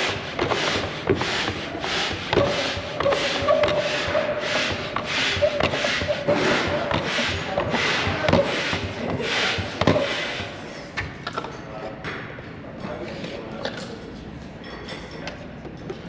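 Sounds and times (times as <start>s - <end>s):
manual air pump strokes: 0.0s - 10.9s.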